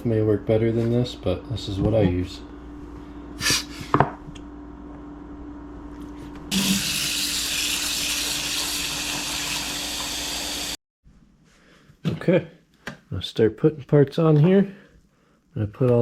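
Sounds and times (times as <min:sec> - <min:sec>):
water running into tank: 0:06.5 - 0:10.8.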